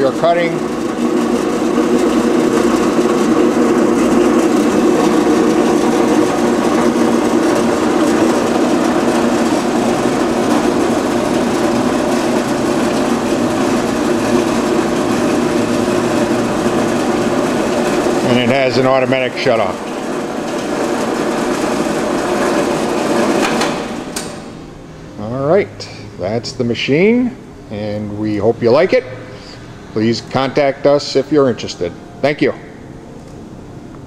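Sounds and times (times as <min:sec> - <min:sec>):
band saw cutting: 0:00.0 - 0:24.4.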